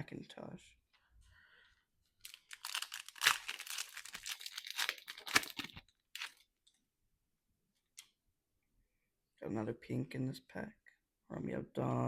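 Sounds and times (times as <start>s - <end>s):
wrapper tearing and crinkling: 2.2s - 6.4s.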